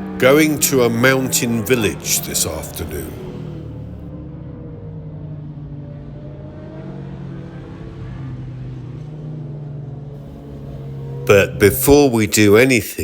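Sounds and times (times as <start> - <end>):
motorcycle engines revving: 0.0 - 4.8, 9.8 - 13.0.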